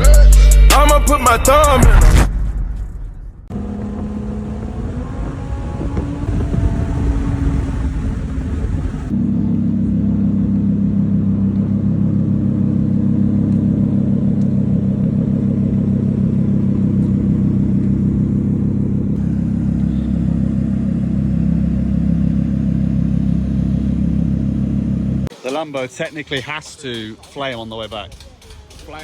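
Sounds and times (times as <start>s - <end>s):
road rumble: 0.0s - 25.4s
car engine driving: 3.4s - 25.4s.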